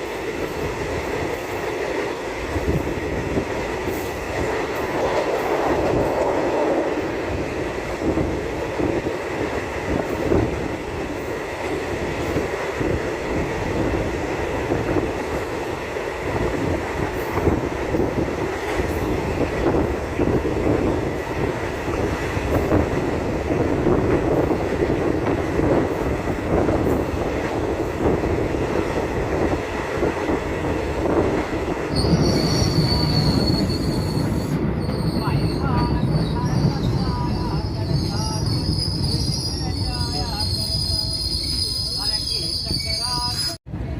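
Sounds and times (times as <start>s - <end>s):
train rumbling and rattling: 0.0s - 43.9s
high wheel squeal: 31.9s - 43.6s.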